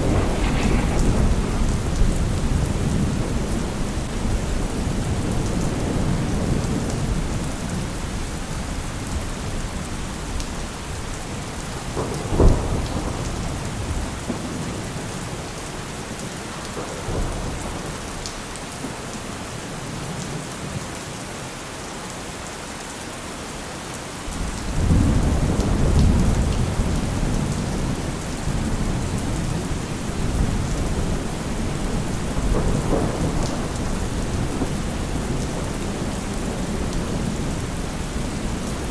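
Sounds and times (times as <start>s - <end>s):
sharp thunderclap: 0.0s - 6.8s, 11.8s - 14.8s, 24.4s - 38.9s
thunder rumbling: 0.0s - 8.3s, 10.9s - 15.4s, 24.4s - 38.9s
steady rain: 0.0s - 38.9s.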